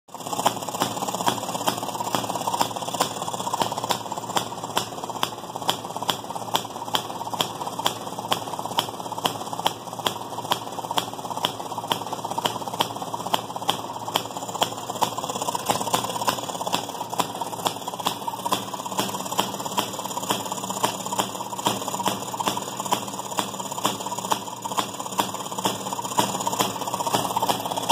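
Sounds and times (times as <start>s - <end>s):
sharp rhythmic clicks: 0.1s - 27.9s
washing machine engine clatter: 0.1s - 27.9s.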